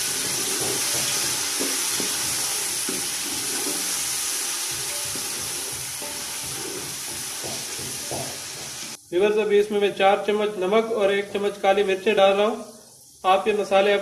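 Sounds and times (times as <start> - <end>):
wooden spoon scraping a pot: 0.0 - 4.1, 4.7 - 9.0
food sizzling in hot oil: 0.0 - 14.0.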